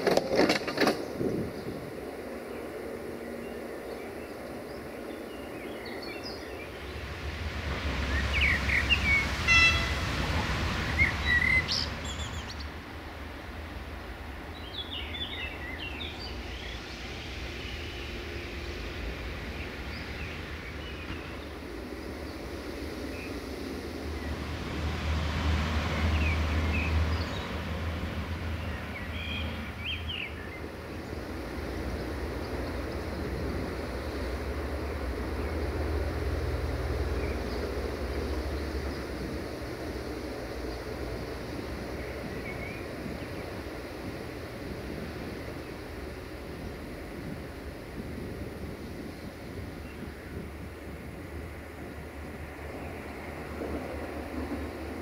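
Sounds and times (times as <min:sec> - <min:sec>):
outdoor background noise: 0:00.0 - 0:55.0
small birds chirping: 0:00.9 - 0:07.2, 0:08.0 - 0:13.0, 0:14.0 - 0:24.4, 0:26.1 - 0:36.1, 0:36.9 - 0:46.6.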